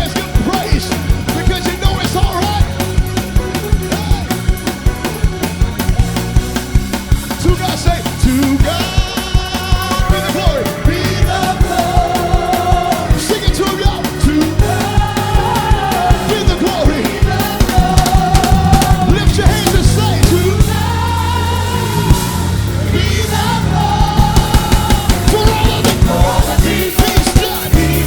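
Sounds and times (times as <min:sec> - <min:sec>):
drum hits: 0:00.0 - 0:28.0
gospel band playing: 0:00.0 - 0:28.0.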